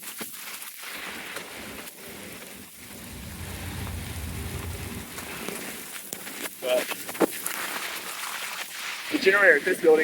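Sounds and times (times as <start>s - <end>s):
rain pattering: 0.0s - 10.0s
low mechanical hum: 2.6s - 5.2s.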